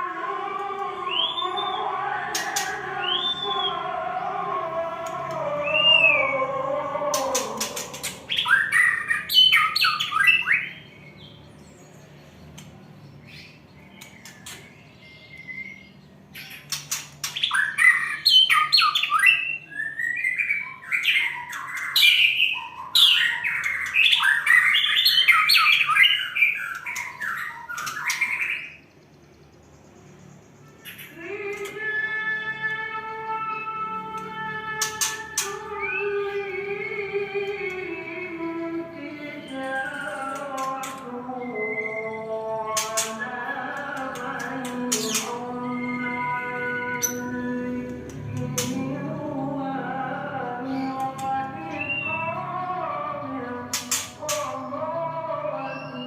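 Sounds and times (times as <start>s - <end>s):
songbird chirping and trilling: 0.0s - 56.0s.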